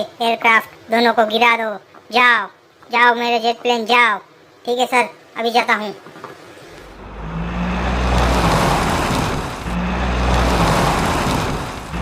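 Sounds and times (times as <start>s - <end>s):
jet engine rushing: 6.8s - 12.0s.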